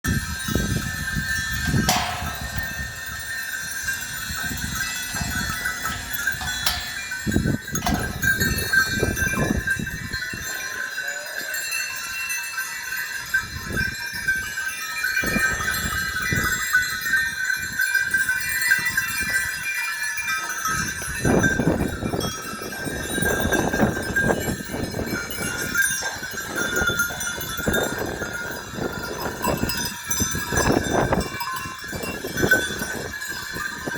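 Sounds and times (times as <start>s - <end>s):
sheep moving: 0.1s - 33.9s
steady high ringing: 0.1s - 33.9s.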